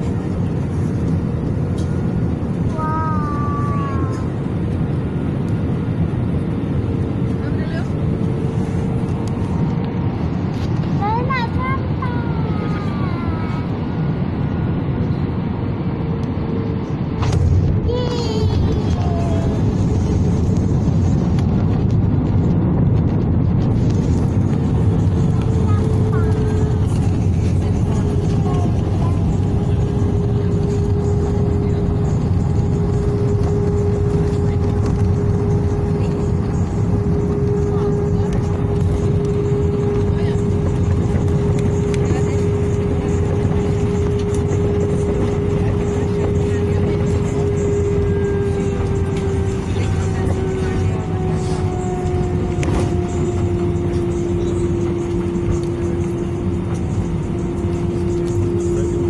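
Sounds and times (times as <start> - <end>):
airliner cabin rumble and hum: 0.0 - 59.0.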